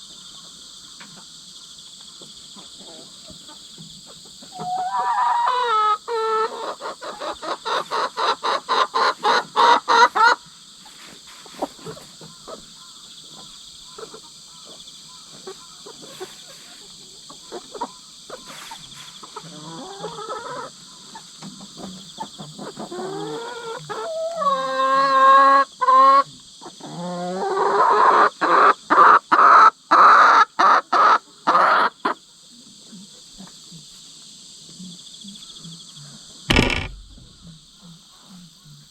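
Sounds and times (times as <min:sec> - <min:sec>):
crickets chirping: 0:00.0 - 0:38.9
hens squawking: 0:04.5 - 0:20.8.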